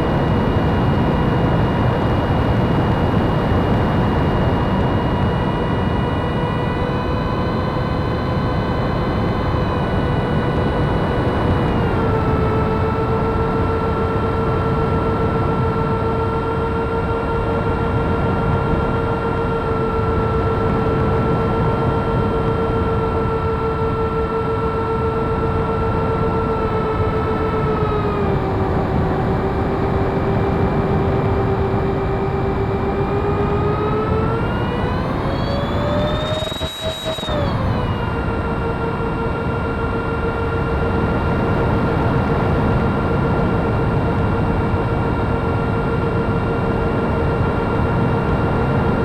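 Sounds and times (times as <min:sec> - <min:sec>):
electric ducted fans whining: 0:00.0 - 0:49.0.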